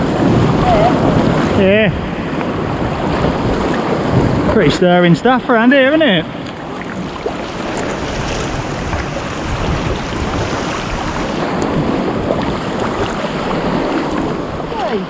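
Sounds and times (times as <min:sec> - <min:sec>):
sea water sloshing and splashing: 0:00.0 - 0:04.8, 0:06.2 - 0:15.0
wind buffeting microphone: 0:00.0 - 0:15.0.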